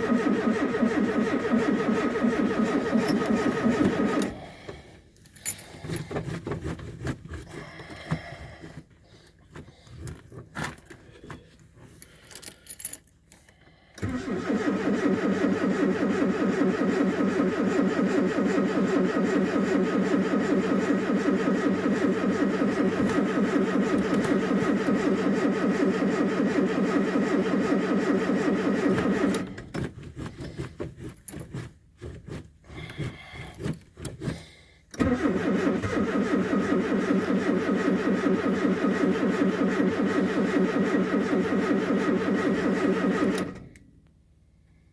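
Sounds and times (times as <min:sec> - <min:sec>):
vehicle engine starting and running: 0:00.0 - 0:06.2, 0:14.0 - 0:30.6, 0:34.9 - 0:43.9.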